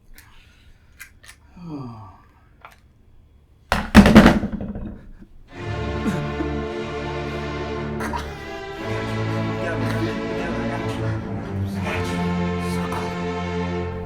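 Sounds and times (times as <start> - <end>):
faint clicks: 0.0 - 1.5
music with sustained notes: 5.5 - 14.0.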